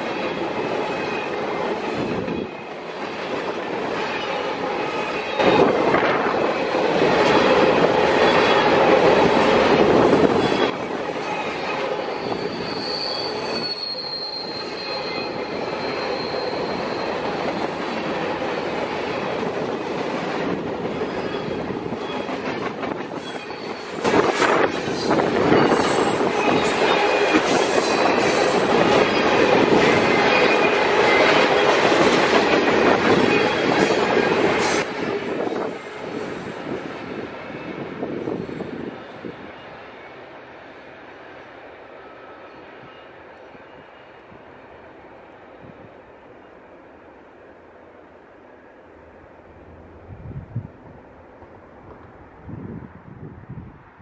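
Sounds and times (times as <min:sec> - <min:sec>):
train wheels rumbling on rails: 0:00.0 - 0:46.5, 0:49.4 - 0:54.0
train wheel squeal: 0:00.0 - 0:47.7.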